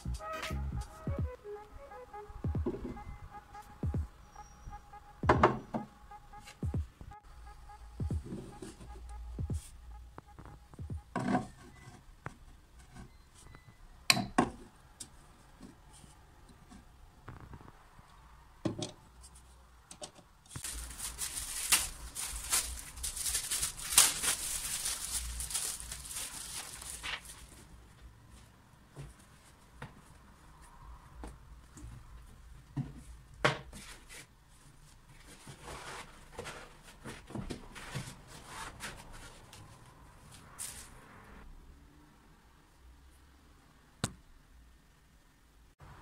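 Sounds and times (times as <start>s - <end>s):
rustling and crinkling: 20.5s - 41.0s.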